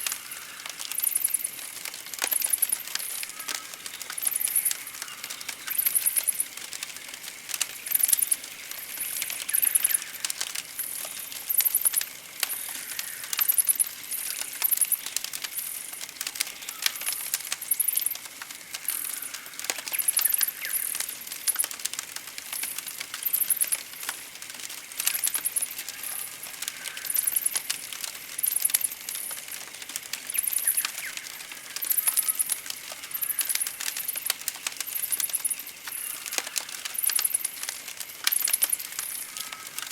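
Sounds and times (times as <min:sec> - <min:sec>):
campfire crackling: 0:00.0 - 0:39.9
faint bird chirps: 0:30.3 - 0:34.3.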